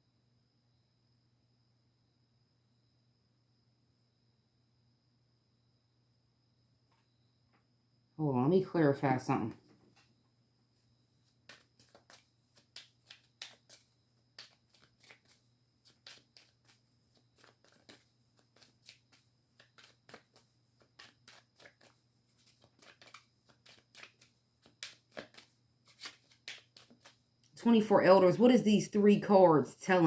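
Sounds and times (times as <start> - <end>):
cards being shuffled: 11.2 - 27.3.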